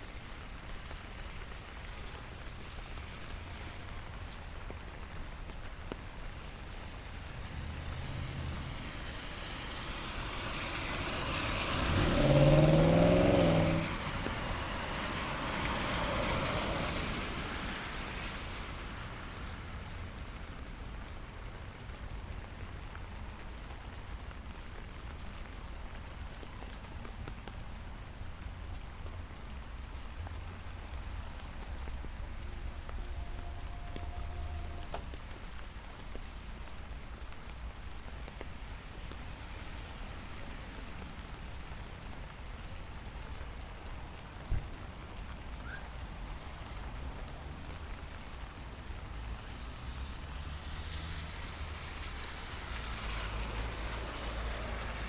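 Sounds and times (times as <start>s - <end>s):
light rain: 0.0s - 55.0s
tyres hissing on wet road: 0.0s - 55.0s
vehicle engine drone: 6.5s - 18.1s.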